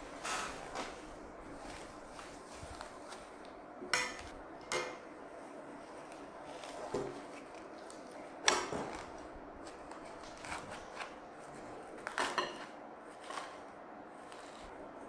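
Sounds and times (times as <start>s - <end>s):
moss rustling: 0.0s - 3.5s.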